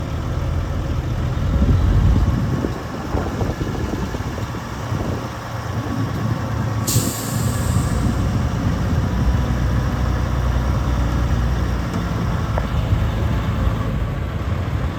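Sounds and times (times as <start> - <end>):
truck diesel engine running: 0.0 - 14.9
air brake hiss: 6.8 - 8.5.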